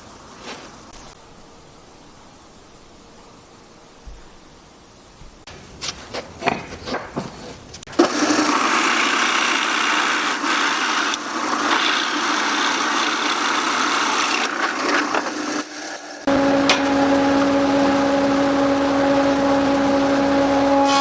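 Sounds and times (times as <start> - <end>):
power tool cutting wood: 7.9 - 21.0.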